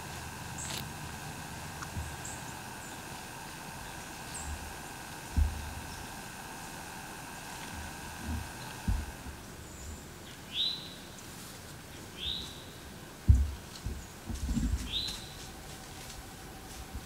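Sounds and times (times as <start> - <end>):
low dull thumps: 0.0 - 9.6, 13.3 - 17.0.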